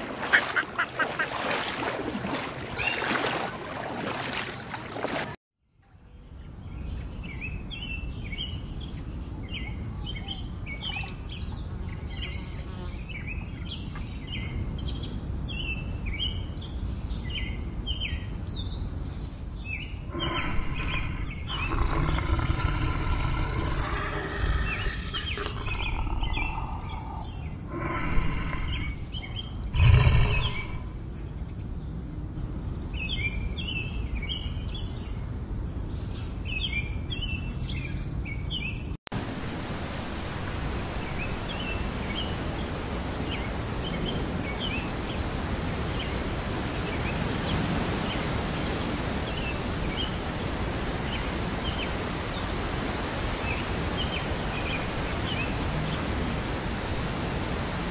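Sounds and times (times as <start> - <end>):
small birds chirping: 6.1 - 32.0.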